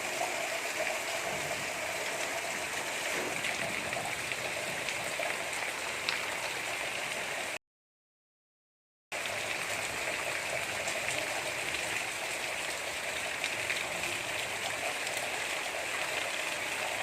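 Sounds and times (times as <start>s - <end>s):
gentle rain hiss: 0.0s - 7.6s, 9.2s - 17.0s
raindrop ticks: 3.0s - 6.6s.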